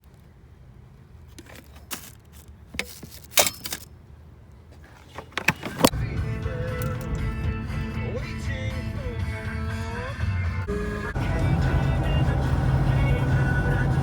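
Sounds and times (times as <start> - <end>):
small hard objects clattering: 1.3 - 3.9
low rumble: 5.9 - 14.0
strummed guitar music: 5.9 - 14.0.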